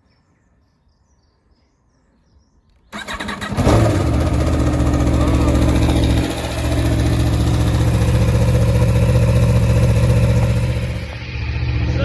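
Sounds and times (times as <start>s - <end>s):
motorcycle engine running loud: 3.0s - 11.8s.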